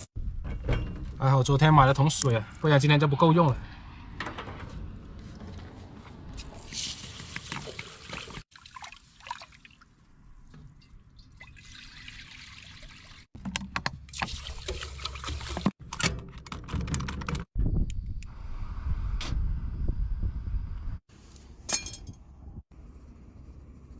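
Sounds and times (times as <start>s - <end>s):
water pouring from bucket: 6.4s - 10.2s, 11.0s - 13.3s, 14.1s - 15.8s
water sloshing in pot: 6.6s - 13.3s, 14.1s - 15.8s.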